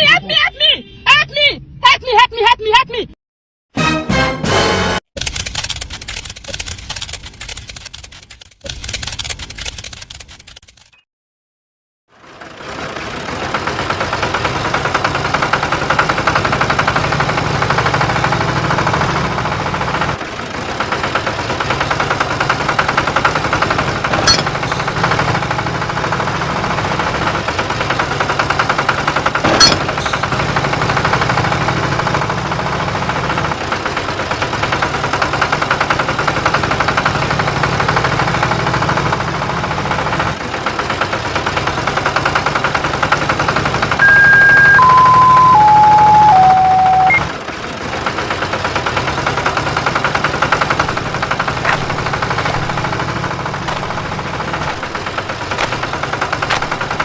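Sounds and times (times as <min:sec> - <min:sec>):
sharp clicks: 0:05.2 - 0:11.0
tractor engine chugging: 0:12.2 - 0:57.0.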